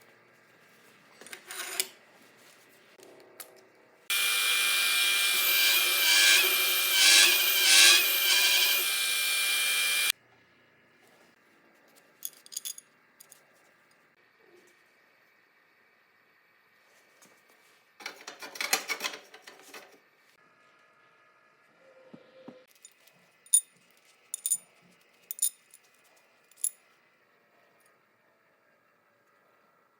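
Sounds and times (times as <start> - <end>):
drill bit scraping metal: 4.1 - 10.1
power drill motor whine: 4.1 - 10.1
small metal parts clinking: 12.2 - 13.4, 22.7 - 23.7, 24.3 - 25.9, 26.5 - 26.8.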